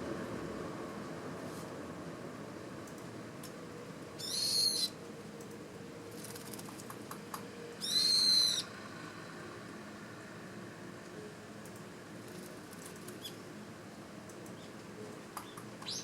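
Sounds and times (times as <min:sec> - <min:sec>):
high bird calls: 0:04.2 - 0:05.0, 0:07.8 - 0:08.7.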